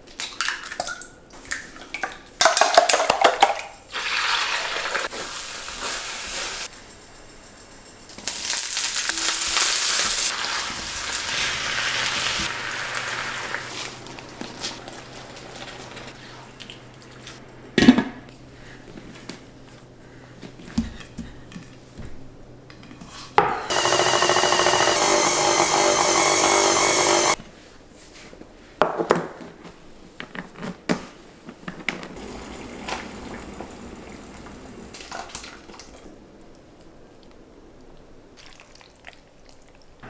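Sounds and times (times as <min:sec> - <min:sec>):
kitchen appliance motor running: 0:23.7 - 0:27.4, 0:32.2 - 0:35.0.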